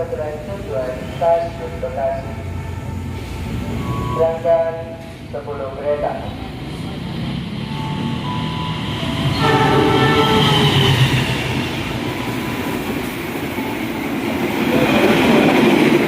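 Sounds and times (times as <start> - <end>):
train rumbling past: 0.0 - 16.0
train horn: 9.3 - 11.1.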